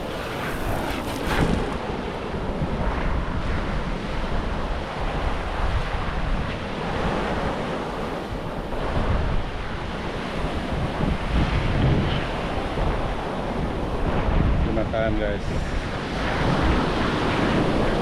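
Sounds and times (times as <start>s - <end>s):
sea wash: 0.0s - 2.6s
wind buffeting microphone: 0.0s - 18.0s.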